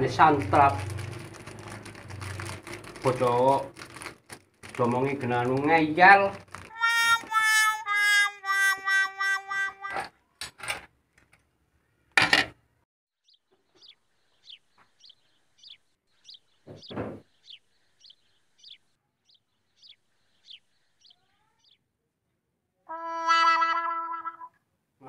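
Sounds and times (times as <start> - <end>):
birds chirping: 13.2 - 21.9
loud thump: 16.7 - 17.2
sharp knocks: 16.7 - 17.3.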